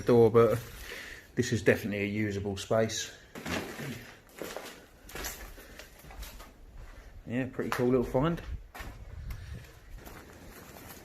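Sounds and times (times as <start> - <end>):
footsteps: 3.3 - 11.0
wind rumbling on microphone: 8.3 - 10.1.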